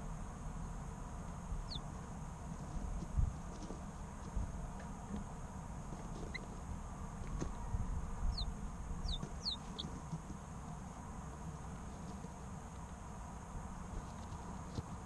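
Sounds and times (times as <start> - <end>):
steady low rumble: 0.0 - 9.8
chicks peeping: 1.6 - 5.2, 5.9 - 6.6, 7.2 - 10.8.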